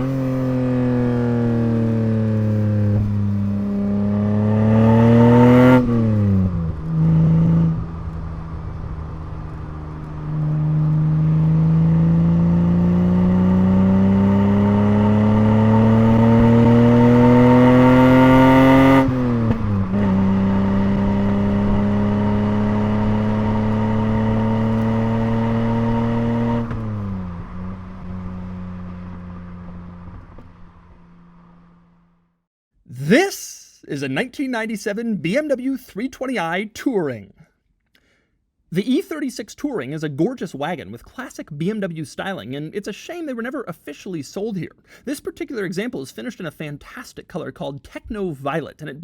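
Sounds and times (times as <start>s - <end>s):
car engine accelerating: 0.0s - 32.3s.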